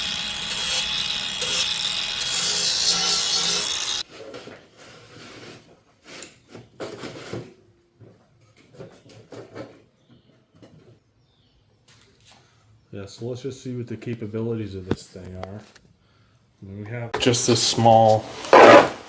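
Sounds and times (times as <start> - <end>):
tile cutter scoring wheel scraping: 0.0 - 4.1, 17.2 - 19.0.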